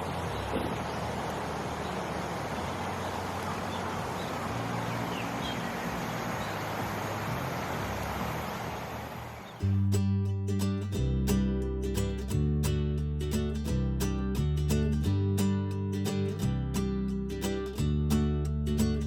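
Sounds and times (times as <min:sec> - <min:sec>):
vehicle engine hum: 0:00.0 - 0:09.9
road and wind noise: 0:00.0 - 0:10.0.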